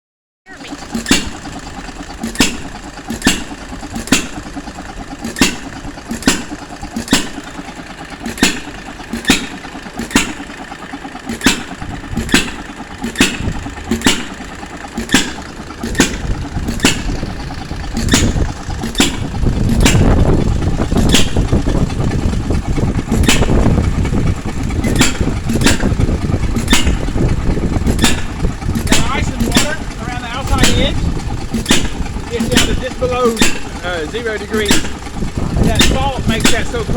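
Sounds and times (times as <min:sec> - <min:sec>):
engine popping: 0:00.5 - 0:36.9
low rumble: 0:11.2 - 0:36.9.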